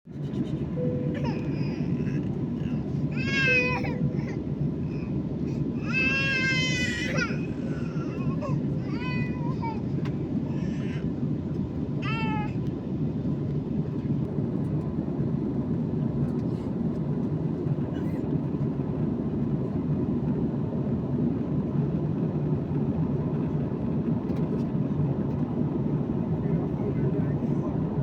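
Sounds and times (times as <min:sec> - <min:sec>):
airliner cabin rumble: 0:00.1 - 0:28.0.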